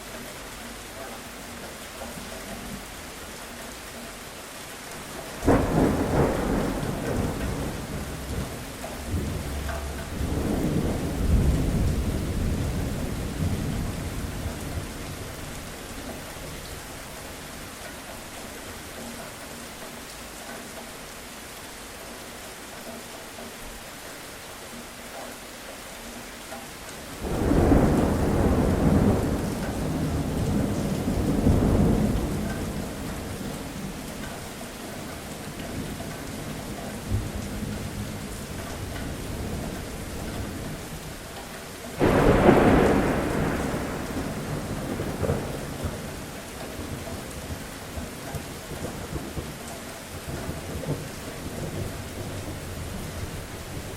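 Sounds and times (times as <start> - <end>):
steady rain: 0.0 - 53.9
thunder crack and rumble: 5.0 - 17.2, 27.2 - 34.3, 42.0 - 53.9.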